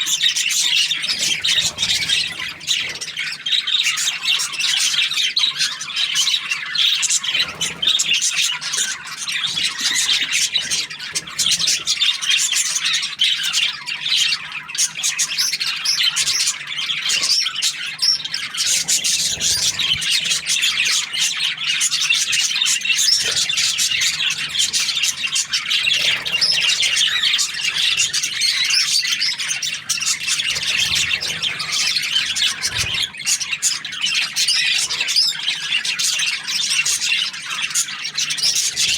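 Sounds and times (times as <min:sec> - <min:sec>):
budgerigars chirping and chattering: 0:00.0 - 0:38.9.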